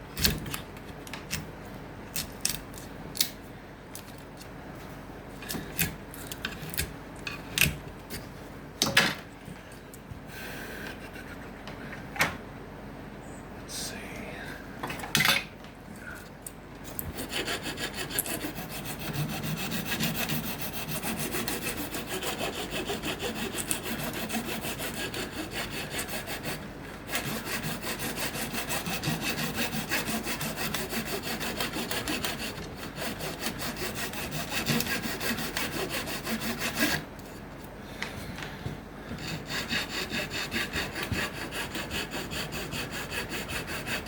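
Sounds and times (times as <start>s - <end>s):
hand saw cutting wood: 17.1s - 37.1s, 39.2s - 44.0s.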